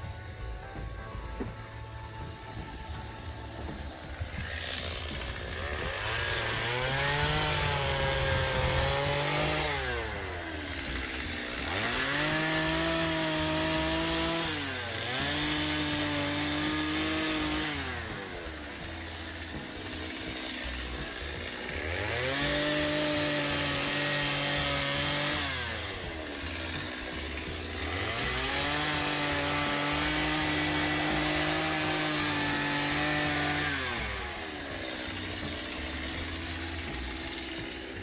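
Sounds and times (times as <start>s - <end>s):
chainsaw engine revving: 0.0s - 38.0s.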